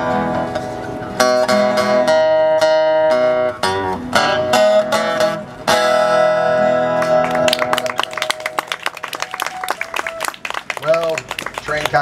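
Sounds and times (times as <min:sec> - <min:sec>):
acoustic guitar playing: 0:00.0 - 0:09.0.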